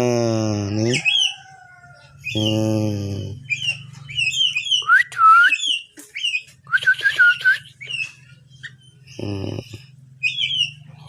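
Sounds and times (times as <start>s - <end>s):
bird chirping: 0.2s - 11.0s
bubbly bird song: 2.2s - 11.0s.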